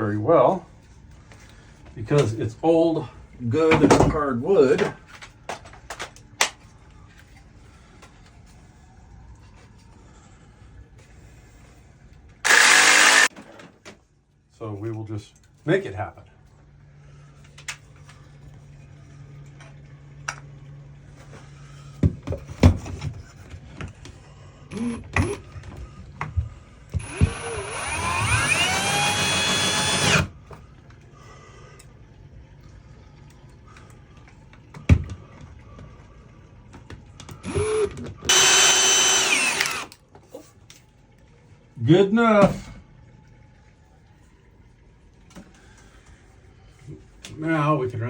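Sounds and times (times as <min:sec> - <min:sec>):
power drill boring through wood: 0:12.4 - 0:13.3, 0:24.7 - 0:25.4, 0:27.0 - 0:30.3, 0:37.4 - 0:40.0.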